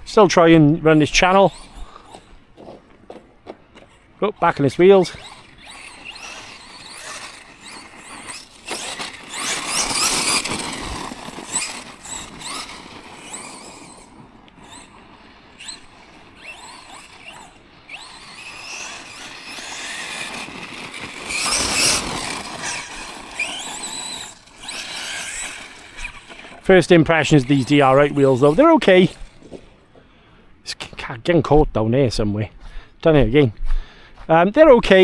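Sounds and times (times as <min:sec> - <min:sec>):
electric motor and drivetrain whine: 0:00.0 - 0:30.0.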